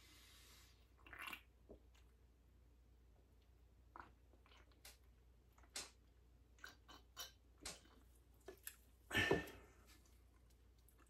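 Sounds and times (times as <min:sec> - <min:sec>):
man chewing food: 0:03.9 - 0:08.9, 0:09.5 - 0:11.0.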